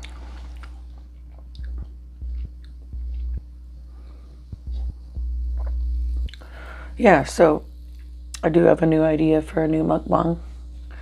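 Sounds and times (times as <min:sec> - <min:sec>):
chewing meat: 0:00.0 - 0:03.6
low rumble: 0:01.5 - 0:09.4.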